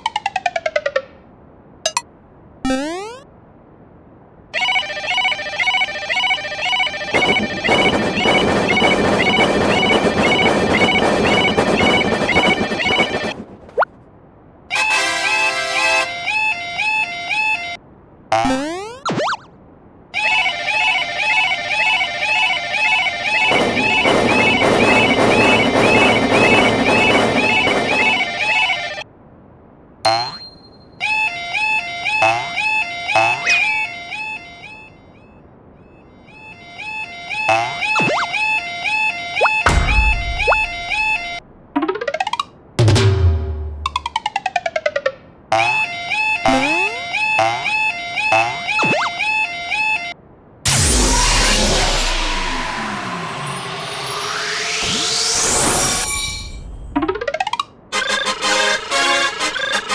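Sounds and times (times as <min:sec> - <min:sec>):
falling electronic pips: 0:02.7 - 0:03.2, 0:18.3 - 0:19.4, 0:39.4 - 0:44.4, 0:46.5 - 0:47.2, 0:50.7 - 0:59.9
level-crossing warning alarm: 0:04.6 - 0:13.4, 0:14.8 - 0:17.8, 0:20.2 - 0:29.0, 0:36.4 - 0:41.4, 0:45.6 - 0:56.6, 0:57.9 - 0:59.9
loud rhythmic rumble: 0:23.5 - 0:29.0, 0:39.7 - 0:41.4
dense droning sound: 0:39.7 - 0:41.4, 0:50.7 - 0:57.0.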